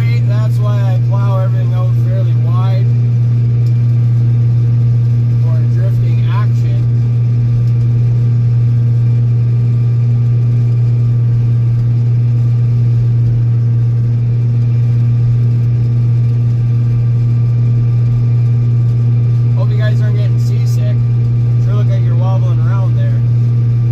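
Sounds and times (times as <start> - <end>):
tractor diesel engine running: 0.0 - 23.9.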